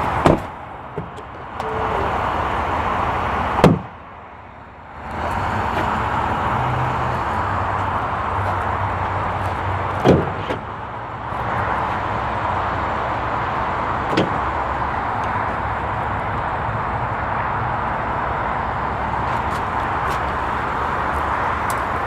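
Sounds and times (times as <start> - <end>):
car door slamming: 0.2 - 2.2, 3.6 - 3.9, 10.0 - 10.7, 14.1 - 14.4.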